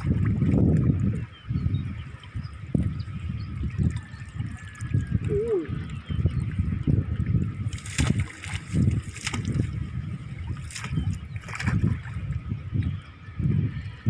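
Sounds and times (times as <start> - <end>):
sharp water splashes: 0.0 - 1.2, 7.6 - 12.3
river water sloshing: 0.0 - 12.9.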